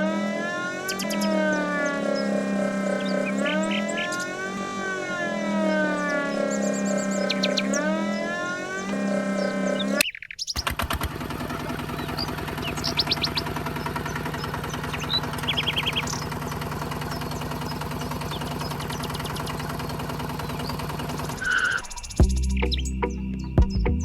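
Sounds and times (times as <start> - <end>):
rising siren-like sound: 0.0 - 10.0, 12.2 - 22.3
small electric motor buzzing: 0.0 - 10.0
bird chirping: 0.0 - 10.7, 11.7 - 24.0.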